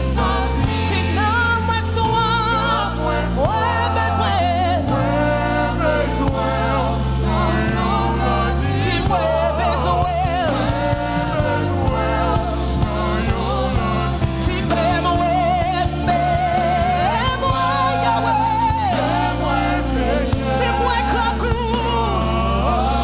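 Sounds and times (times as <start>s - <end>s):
band with bass and drums: 0.0s - 23.0s
person singing with backing vocals: 0.0s - 23.0s.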